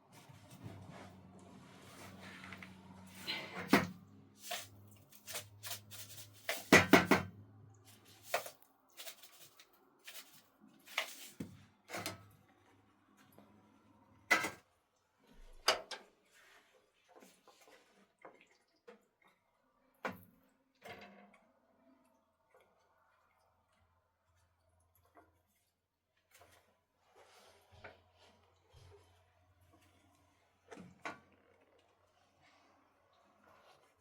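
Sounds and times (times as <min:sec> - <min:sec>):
objects knocking and clattering: 0:03.3 - 0:07.3.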